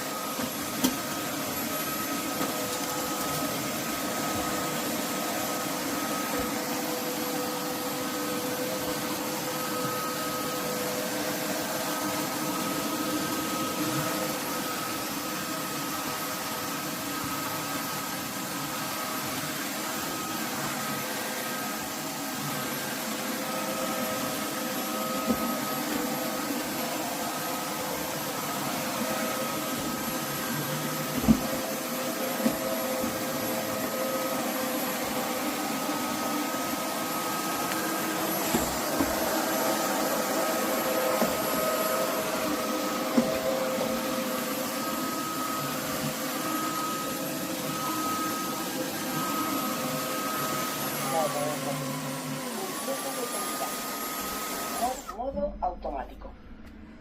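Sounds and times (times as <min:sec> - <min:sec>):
vacuum mop motor with high whine: 0:00.0 - 0:55.3.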